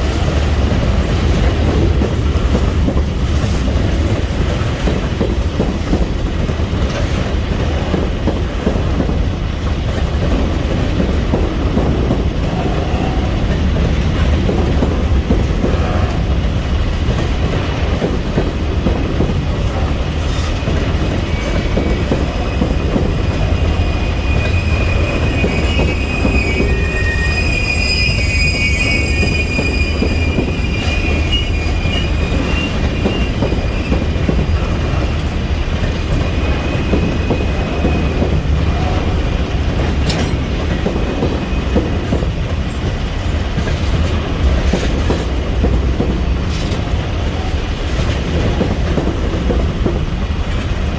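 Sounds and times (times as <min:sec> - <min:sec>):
freight train wheels rumbling: 0:00.0 - 0:50.9
high-pitched wheel squeal: 0:23.5 - 0:34.0.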